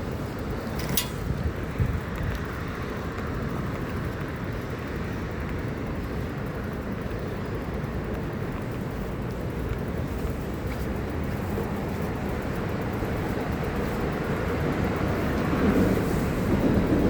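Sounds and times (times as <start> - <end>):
tyres on wet ground: 0.0 - 3.1.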